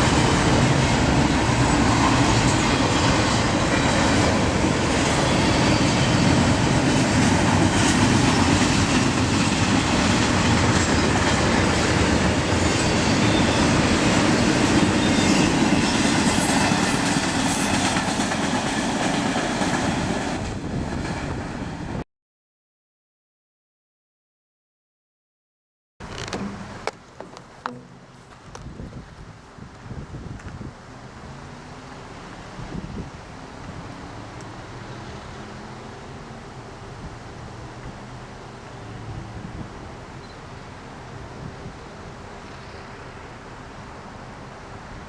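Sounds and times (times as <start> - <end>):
train wheels clattering on track: 0.0 - 21.8.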